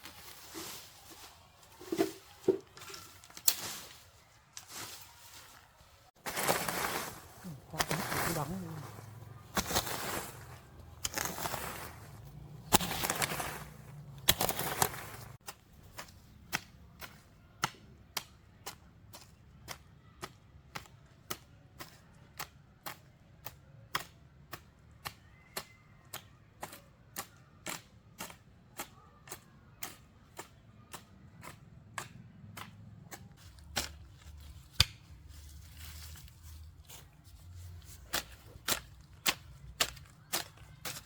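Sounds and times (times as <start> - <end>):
rustling and scraping: 0.0 - 15.4, 33.2 - 41.0.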